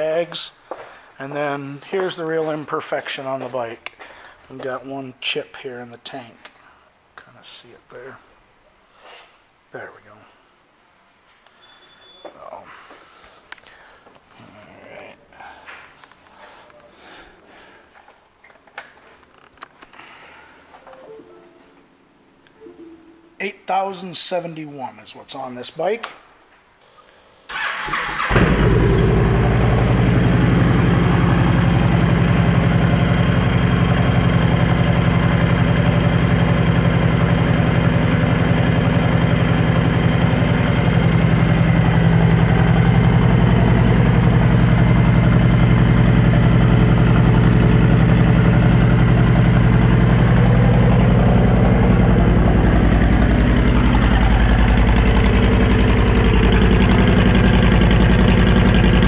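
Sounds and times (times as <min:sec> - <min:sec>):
motorcycle engine idling: 0:28.4 - 0:59.0.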